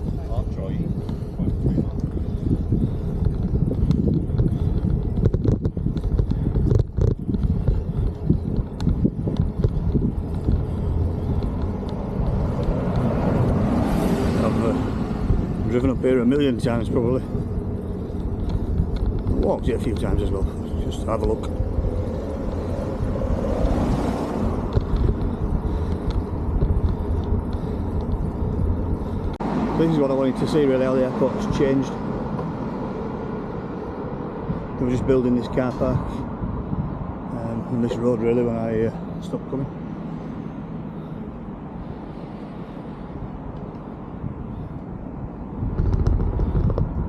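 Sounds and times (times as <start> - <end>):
bike tyre noise: 0.0 - 47.0
wind rumbling on microphone: 0.0 - 47.0
faint ticks: 3.2 - 13.1, 24.7 - 29.4
bike knocks and rattles: 45.6 - 47.0.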